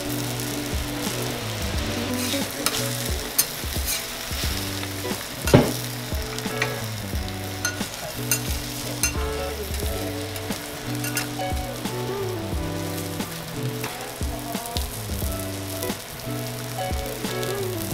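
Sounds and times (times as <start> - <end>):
food sizzling on griddle: 0.0 - 17.9
metal spatulas scraping steel: 7.6 - 9.2, 11.0 - 11.3.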